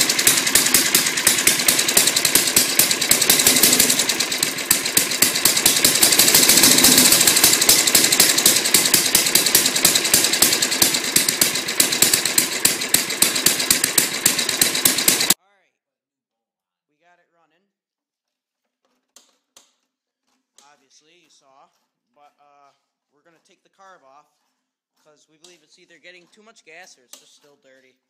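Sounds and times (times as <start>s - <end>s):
lawnmower engine running: 0.0s - 15.4s.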